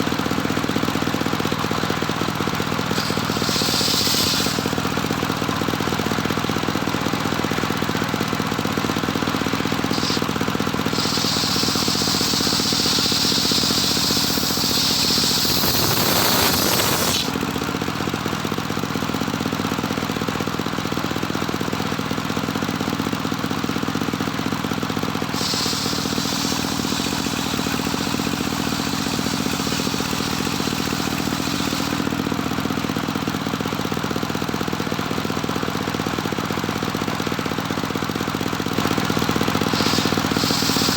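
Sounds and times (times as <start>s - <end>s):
circular saw engine running: 1.2s - 17.5s, 25.0s - 32.6s, 38.8s - 40.9s
saw blade cutting wood: 2.7s - 5.4s, 9.4s - 17.4s, 25.3s - 32.1s, 39.5s - 40.9s.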